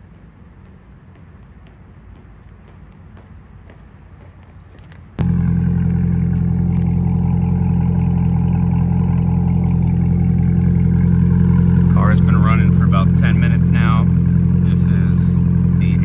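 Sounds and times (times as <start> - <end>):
car engine starting and idling: 5.2 - 16.0.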